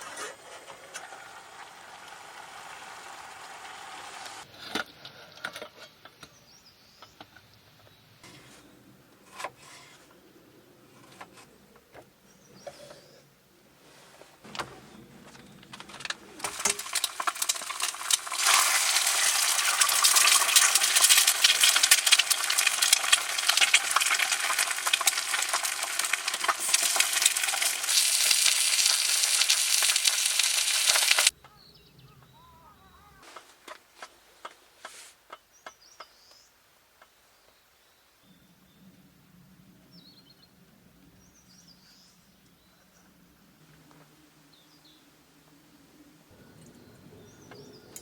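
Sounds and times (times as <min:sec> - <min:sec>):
food sizzling in a pan: 0:01.2 - 0:04.4, 0:16.4 - 0:31.3.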